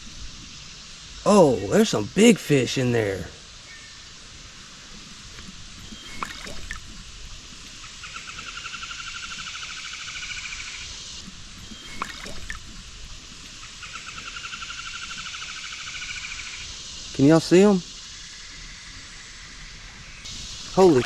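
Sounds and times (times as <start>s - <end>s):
creek water trickling: 0.0s - 21.0s
high insect trill: 0.0s - 21.0s.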